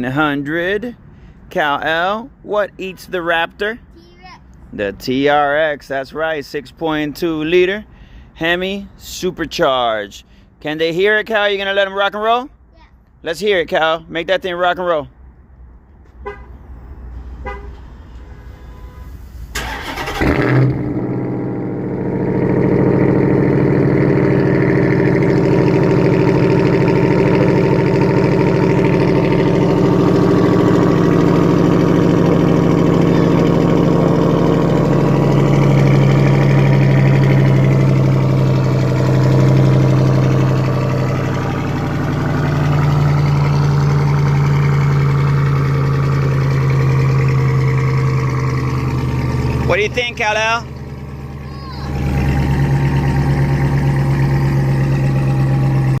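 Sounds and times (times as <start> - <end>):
engine fast idle: 19.5 - 56.0.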